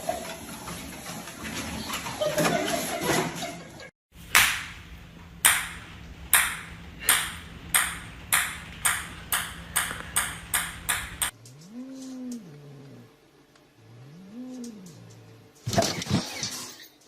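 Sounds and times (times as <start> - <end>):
low steady hum: 4.2 - 16.0
small ball bouncing on hard surface: 6.4 - 11.3.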